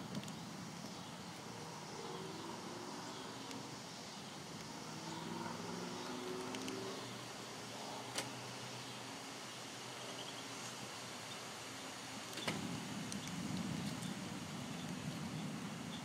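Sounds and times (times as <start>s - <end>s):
wind and rain storm: 0.0s - 16.0s
sharp clicks: 6.4s - 6.8s.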